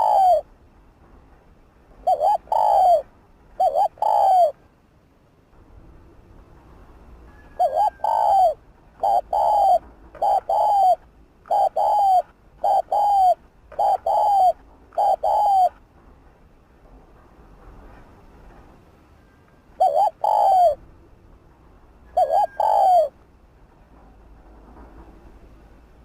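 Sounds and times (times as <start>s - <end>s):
dove cooing: 0.0s - 0.5s, 2.0s - 4.6s, 7.4s - 15.8s, 19.8s - 20.8s, 22.1s - 23.2s.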